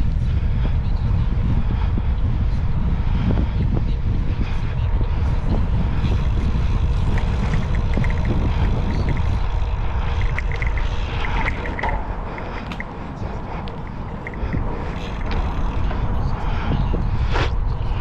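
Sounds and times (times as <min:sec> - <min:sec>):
wind rumbling on microphone: 0:00.0 - 0:18.0
light clicks and rattles: 0:06.0 - 0:16.1.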